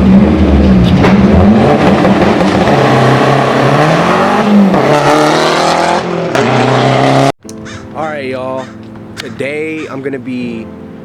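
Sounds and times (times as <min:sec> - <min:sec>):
loud car engine revving: 0:00.0 - 0:07.4.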